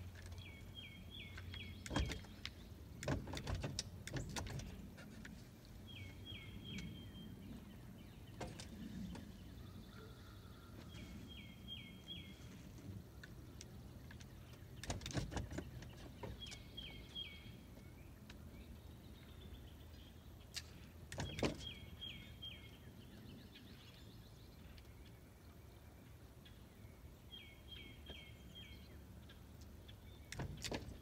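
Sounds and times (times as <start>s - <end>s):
knocks and rustles: 14.1s - 16.6s.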